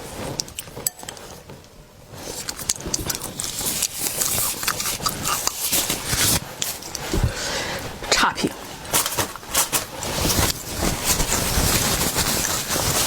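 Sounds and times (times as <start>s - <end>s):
wet mouth clicks while chewing: 2.3s - 6.0s.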